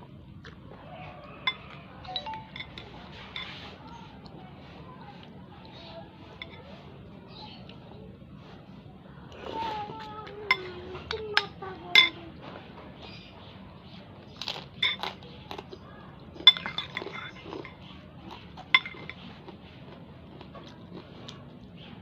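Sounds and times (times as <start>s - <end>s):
cutlery clinking against a dish: 1.4s - 3.8s, 6.3s - 6.7s, 10.3s - 12.2s, 14.4s - 15.2s, 16.4s - 17.9s, 18.6s - 19.3s.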